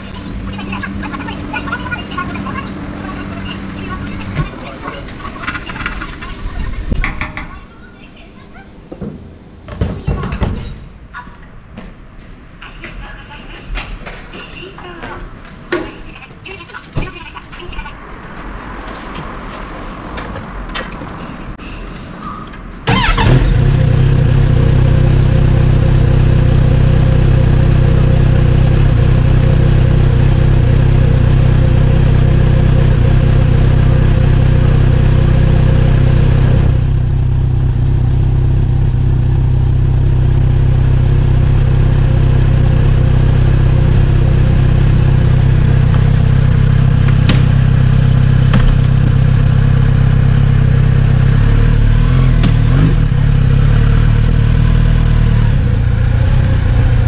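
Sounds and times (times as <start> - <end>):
motorcycle engine running steadily: 22.9 - 57.0.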